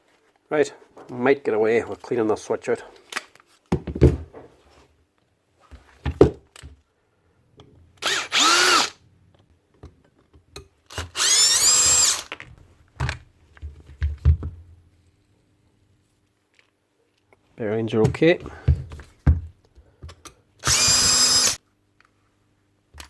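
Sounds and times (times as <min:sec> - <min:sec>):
impact wrench motor whining: 0:08.0 - 0:09.0, 0:10.9 - 0:12.3, 0:20.6 - 0:21.6.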